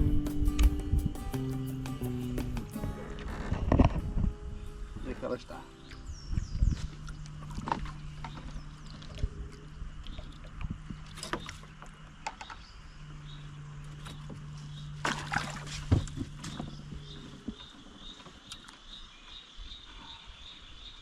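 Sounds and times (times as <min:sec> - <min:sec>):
small boat motor humming: 0:05.6 - 0:18.5
splashing or rustling bursts: 0:14.9 - 0:17.0.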